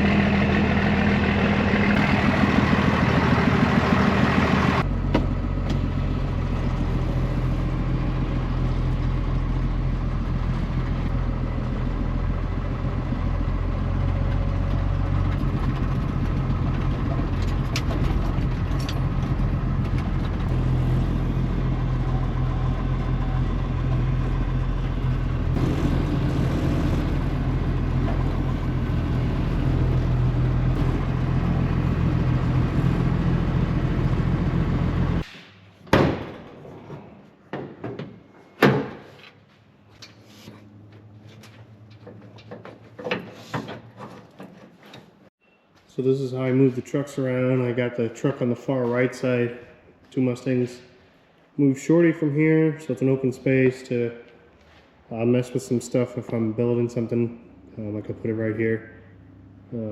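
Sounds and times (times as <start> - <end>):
truck engine idling: 0.0 - 35.2.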